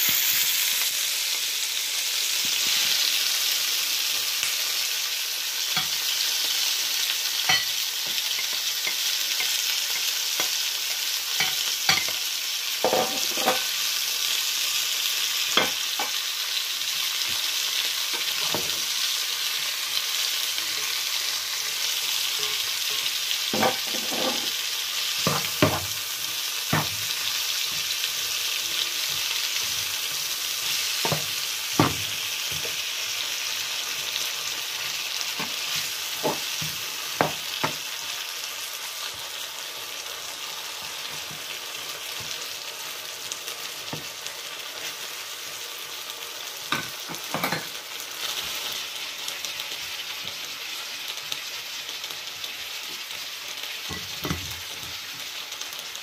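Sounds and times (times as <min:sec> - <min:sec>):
vegetables sizzling in a pan: 0:00.0 - 0:56.0
spatula scraping and knocking pan: 0:12.8 - 0:13.7, 0:23.6 - 0:24.6, 0:29.0 - 0:32.8, 0:35.4 - 0:37.8.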